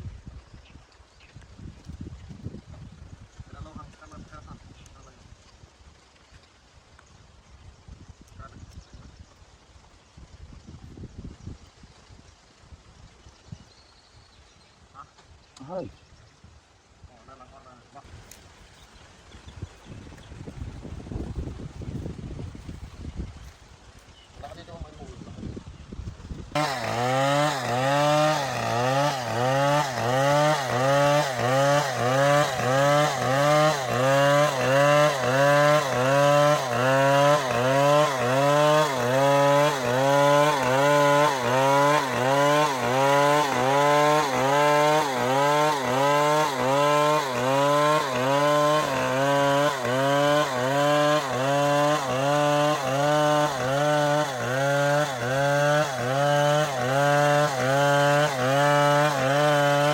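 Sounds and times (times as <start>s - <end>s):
chainsaw cutting wood: 26.2s - 59.9s.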